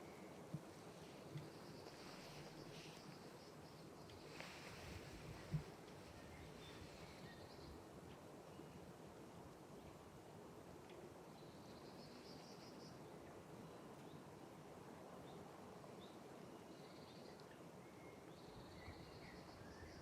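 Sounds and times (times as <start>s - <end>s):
quiet steady hiss: 0.0s - 20.0s
songbird trilling and chirping: 5.5s - 7.8s.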